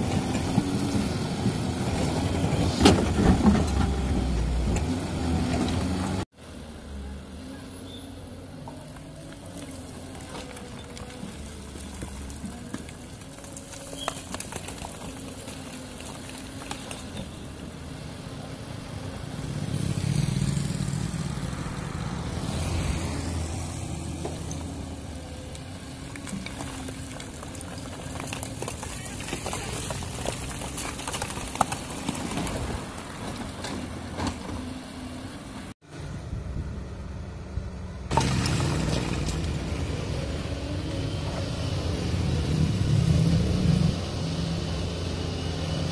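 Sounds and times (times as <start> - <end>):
excavator diesel engine under load: 0.0 - 6.3.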